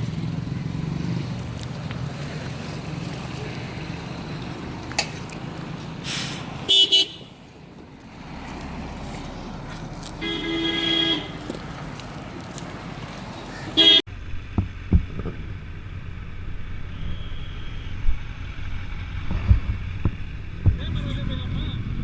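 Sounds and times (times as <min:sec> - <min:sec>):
low engine rumble: 0:00.0 - 0:22.0
vehicle horn honking: 0:06.7 - 0:07.3, 0:10.2 - 0:11.4, 0:13.8 - 0:14.0.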